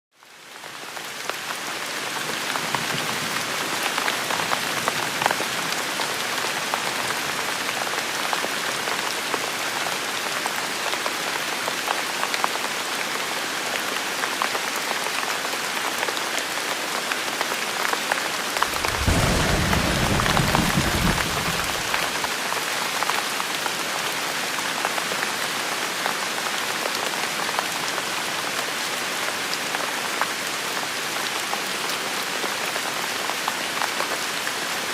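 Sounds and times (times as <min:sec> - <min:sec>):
rain falling: 0:00.2 - 0:34.9
thunder rumbling: 0:18.6 - 0:22.3.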